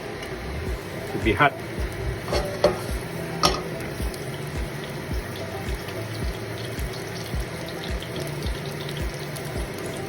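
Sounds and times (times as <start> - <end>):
liver sizzling in frying pan: 0.0 - 10.0
soft low thumps: 1.8 - 9.7.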